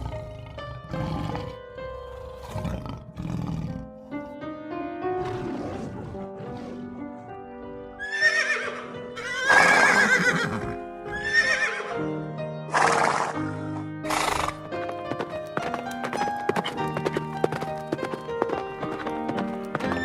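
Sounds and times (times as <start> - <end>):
background music: 0.0 - 20.0
horse whinnying: 8.0 - 11.9, 12.7 - 13.5, 14.1 - 14.6.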